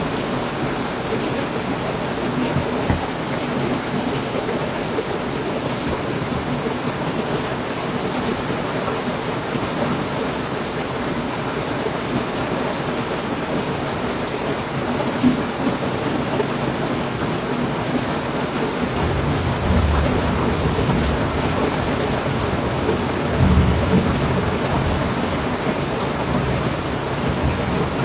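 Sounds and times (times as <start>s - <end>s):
heavy rain hissing: 0.0s - 28.0s
thunder rumbling: 18.9s - 28.0s.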